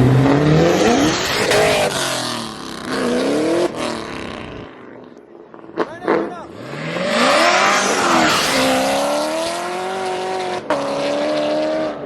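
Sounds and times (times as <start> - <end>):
car engine accelerating hard: 5.7 - 12.0.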